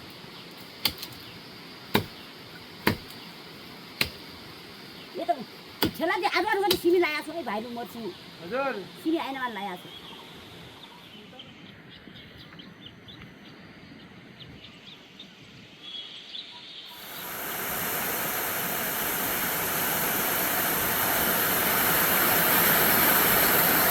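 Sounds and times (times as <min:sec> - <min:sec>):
steady rushing hiss: 0:00.0 - 0:23.9
faint bird chirps: 0:09.2 - 0:17.2.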